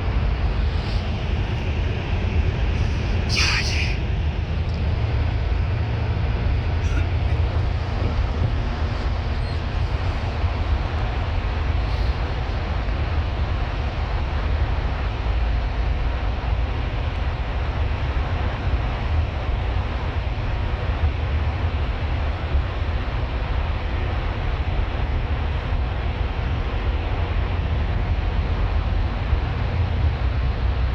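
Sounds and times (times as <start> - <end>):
bus engine rumble: 0.0 - 30.9
road and tyre noise: 0.0 - 30.9.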